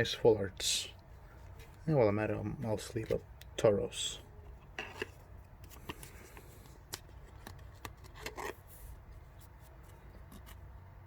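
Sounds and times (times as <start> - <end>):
plastic card sleeve rustling: 4.4 - 10.7.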